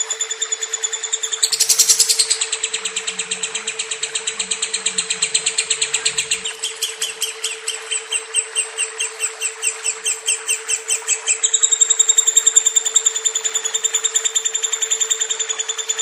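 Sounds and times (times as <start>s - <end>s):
lovebird chirping trill: 0.0s - 16.0s.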